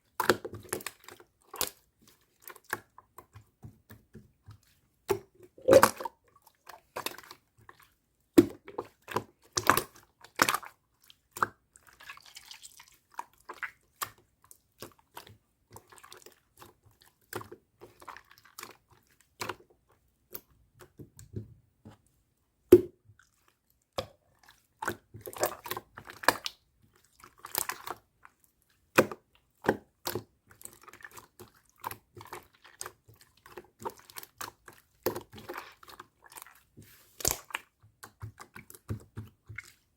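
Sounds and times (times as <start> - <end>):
slime squished by hand: 31.8 - 39.8.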